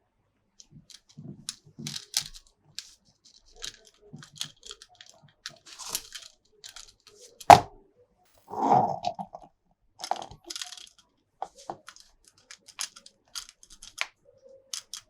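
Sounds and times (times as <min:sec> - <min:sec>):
plastic toy parts being handled: 0:00.6 - 0:07.8, 0:08.5 - 0:15.0.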